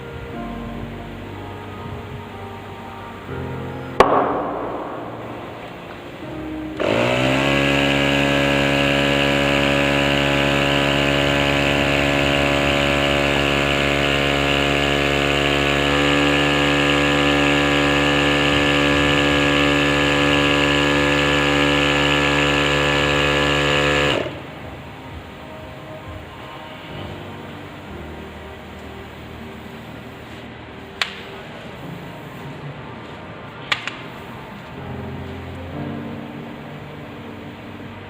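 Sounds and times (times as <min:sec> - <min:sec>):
small motor spinning: 0:06.8 - 0:24.4.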